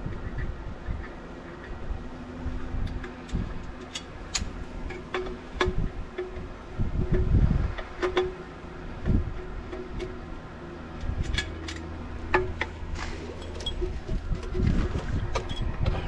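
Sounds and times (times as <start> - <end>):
low steady hum: 0.0 - 16.0
metal clicks and clinks: 11.0 - 14.5.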